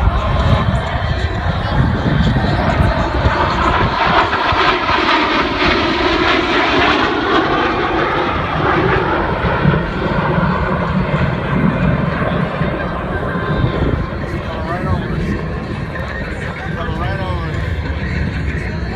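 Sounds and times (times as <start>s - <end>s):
fighter jets flying past: 0.0s - 18.9s.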